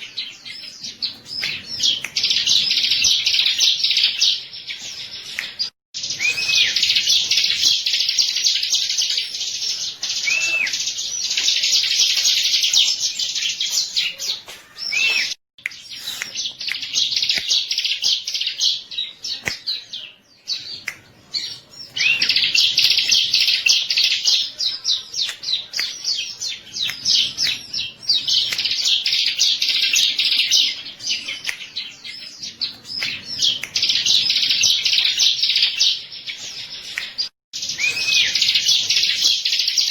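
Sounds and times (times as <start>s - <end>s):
bird looping whistles: 6.1s - 7.0s, 37.7s - 38.6s.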